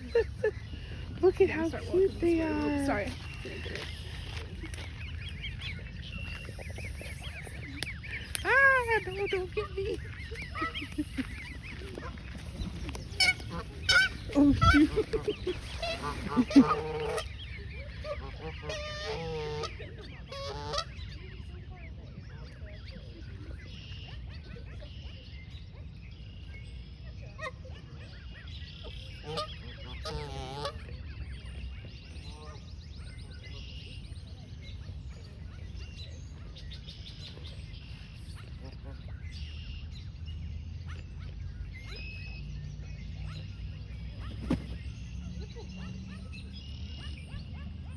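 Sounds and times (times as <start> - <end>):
steady low rumble: 0.0 - 20.2
goslings peeping: 0.0 - 21.1, 28.8 - 30.9
birds chirping and calling: 0.0 - 21.6, 28.0 - 47.9
geese honking: 7.2 - 21.0, 29.2 - 30.9.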